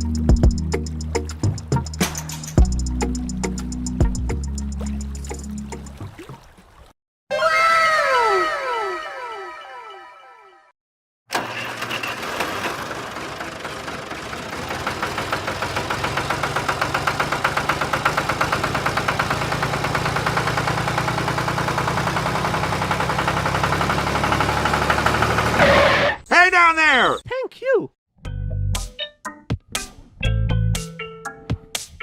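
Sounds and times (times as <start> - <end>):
tractor engine chugging: 11.3 - 26.2.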